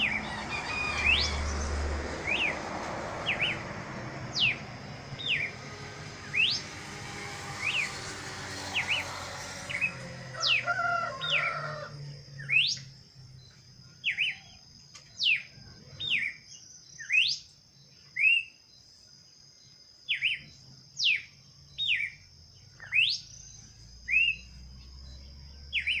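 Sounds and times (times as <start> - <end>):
bird whistled calls: 0.0 - 1.4, 3.3 - 3.6, 4.3 - 4.6, 5.2 - 5.6, 6.3 - 6.7, 12.4 - 12.9, 14.0 - 14.6, 15.2 - 17.5, 18.1 - 18.6, 20.1 - 22.2, 22.8 - 23.4, 24.0 - 24.6, 25.7 - 26.0.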